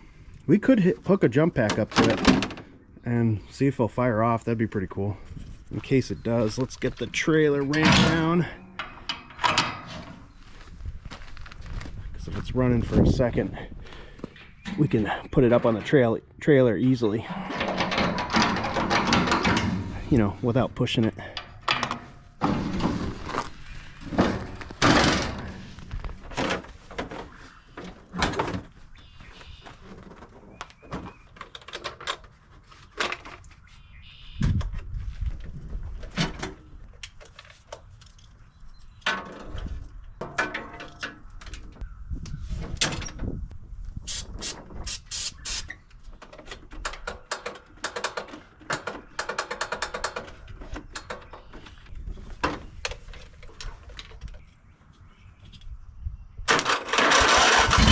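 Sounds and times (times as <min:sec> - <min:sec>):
metal ramps clanking and rattling: 0:07.6 - 0:10.3, 0:17.4 - 0:20.4, 0:21.7 - 0:23.4, 0:24.0 - 0:27.2.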